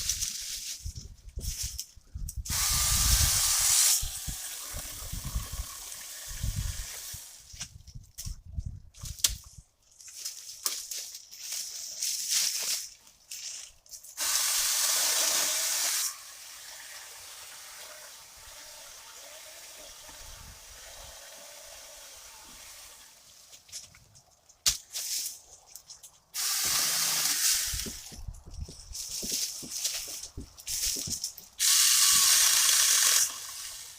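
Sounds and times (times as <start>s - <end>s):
mini chainsaw cutting wood: 2.5s - 7.5s, 14.2s - 23.3s, 26.4s - 28.1s, 31.6s - 33.9s.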